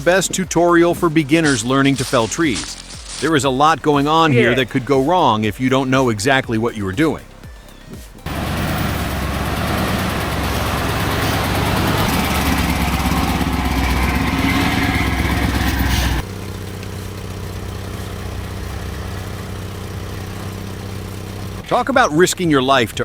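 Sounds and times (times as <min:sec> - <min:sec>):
engine running loudly: 0:08.3 - 0:21.7.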